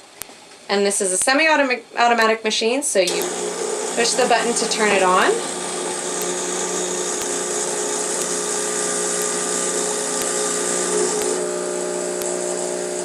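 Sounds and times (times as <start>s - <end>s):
espresso machine pump humming: 3.1s - 13.0s.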